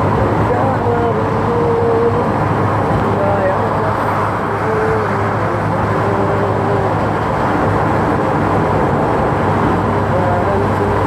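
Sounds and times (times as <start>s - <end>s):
ship machinery drone: 0.0s - 11.0s.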